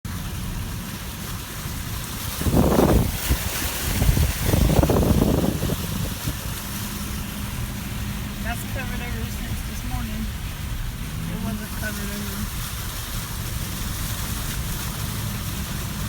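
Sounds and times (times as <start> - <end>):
low rumble: 0.1 - 16.0
wind buffeting microphone: 0.6 - 11.6.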